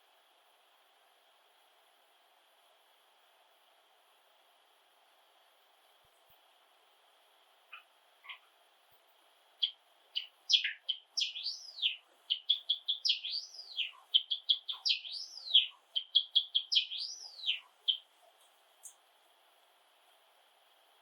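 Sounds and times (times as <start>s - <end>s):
sparrow singing: 9.6s - 18.1s.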